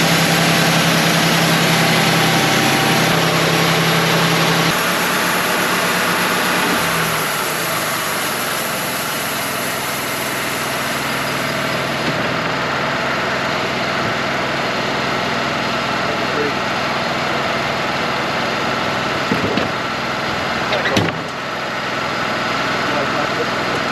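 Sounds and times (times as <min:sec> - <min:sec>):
low hum: 0:00.0 - 0:15.2
band sawmill running: 0:00.0 - 0:23.9.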